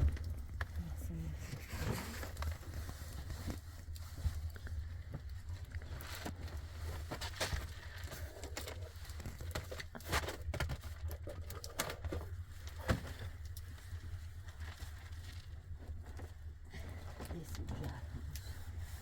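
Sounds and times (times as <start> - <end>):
low rumble: 0.0 - 2.7
knocks and rustling of handling: 0.0 - 19.0.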